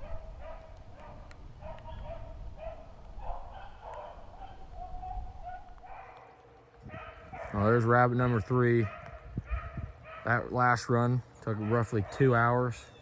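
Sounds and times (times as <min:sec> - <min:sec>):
dogs baying: 0:00.0 - 0:07.7, 0:08.8 - 0:10.5, 0:11.6 - 0:12.4.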